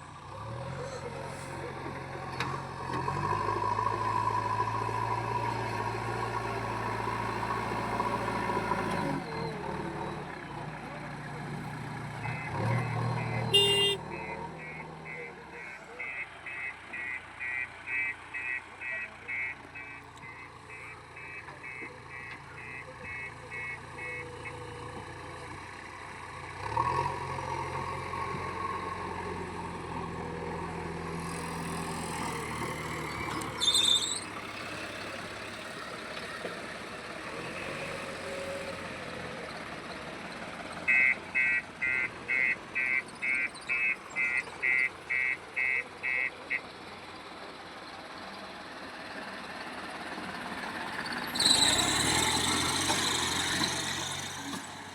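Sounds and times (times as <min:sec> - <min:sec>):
diesel engine running under load: 0:00.0 - 0:54.9
reversing alarm beeping: 0:12.2 - 0:24.6, 0:40.9 - 0:46.7.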